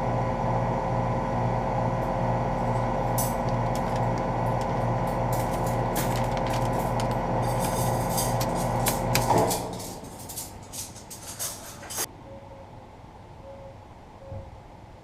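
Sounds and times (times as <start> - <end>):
air conditioner unit humming: 0.0 - 15.0
scattered clicks: 3.2 - 11.1.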